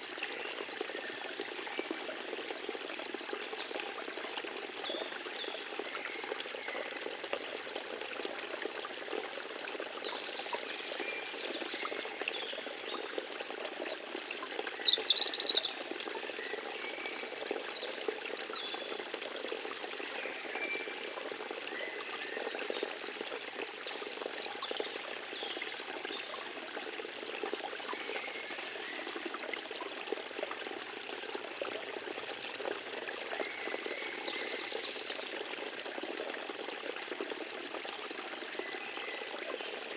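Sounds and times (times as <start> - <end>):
stream trickling: 0.0 - 39.9
small birds chirping: 14.4 - 15.8.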